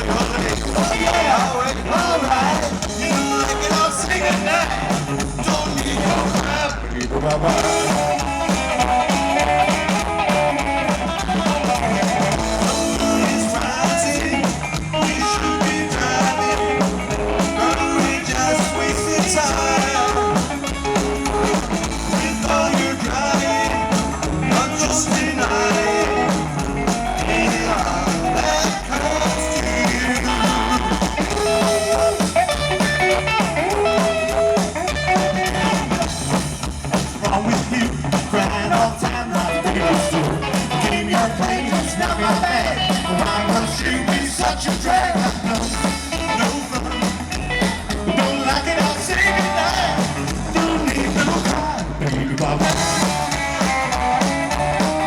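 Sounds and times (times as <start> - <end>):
drums: 0.0 - 55.0
electric guitar lead: 0.0 - 55.0
upright bass: 0.0 - 55.0.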